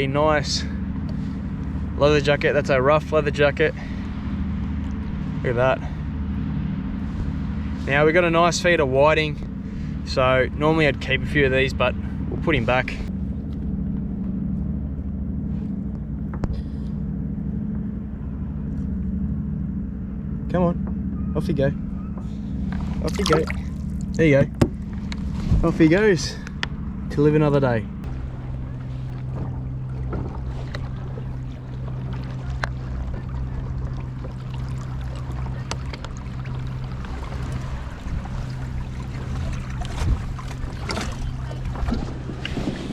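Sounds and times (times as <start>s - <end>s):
low motor hum: 0.0s - 42.9s
water noise: 0.0s - 42.9s
low tones: 10.2s - 42.9s.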